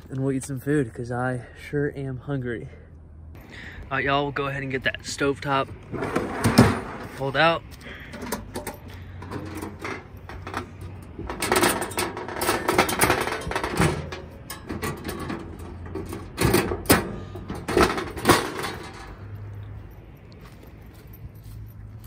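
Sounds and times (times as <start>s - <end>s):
camp gear clattering: 5.8s - 20.2s.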